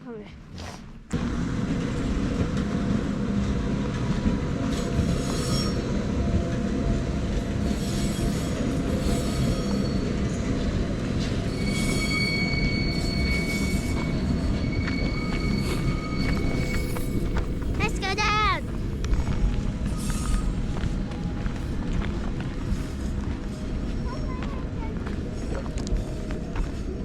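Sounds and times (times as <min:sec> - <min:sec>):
train rumbling on rails: 0:00.0 - 0:27.0
high wheel squeal: 0:04.8 - 0:06.0, 0:07.6 - 0:10.6, 0:11.2 - 0:17.7.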